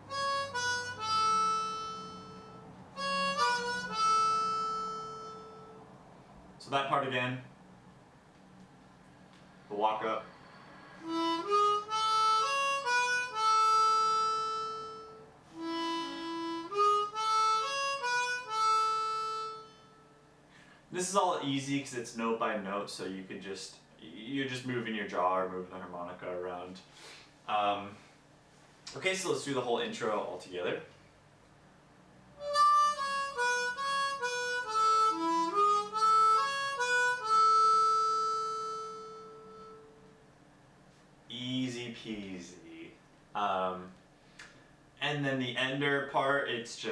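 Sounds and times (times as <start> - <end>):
harmonica melody: 0.0 - 6.2, 10.8 - 20.5, 32.4 - 40.4.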